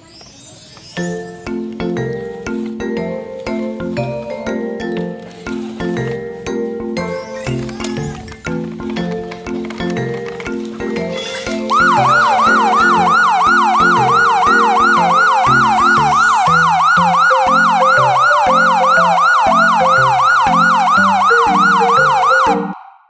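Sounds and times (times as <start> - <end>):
background melody: 0.8 - 23.0
electronic siren yelping: 11.2 - 22.8.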